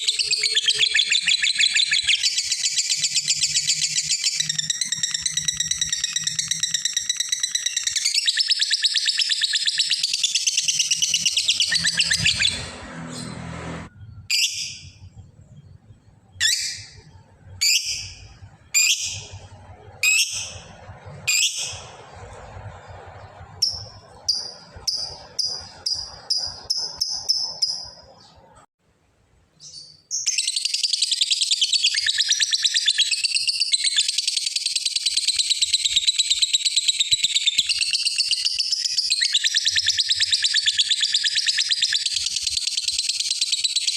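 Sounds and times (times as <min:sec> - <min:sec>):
lovebird chattering trill: 0:00.0 - 0:12.6, 0:23.6 - 0:28.3
sharp bird calls: 0:00.0 - 0:13.4, 0:29.6 - 0:43.9
bird chirps: 0:00.0 - 0:28.6, 0:29.6 - 0:43.9.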